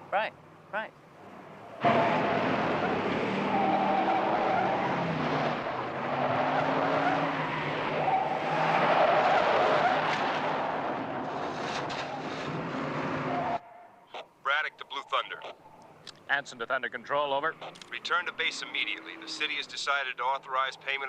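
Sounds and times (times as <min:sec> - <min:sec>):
tyres rushing on ground: 0:01.8 - 0:13.6.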